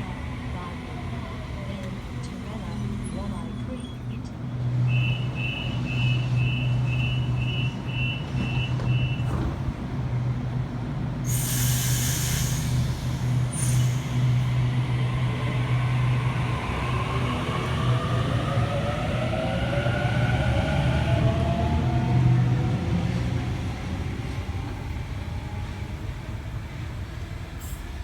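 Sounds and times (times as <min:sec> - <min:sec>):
train door-closing beeps: 0:02.6 - 0:09.9
air hisses: 0:11.3 - 0:14.1.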